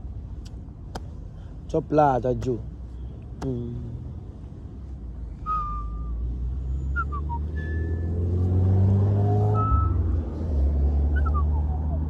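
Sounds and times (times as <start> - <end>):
car engine accelerating: 5.4 - 12.0.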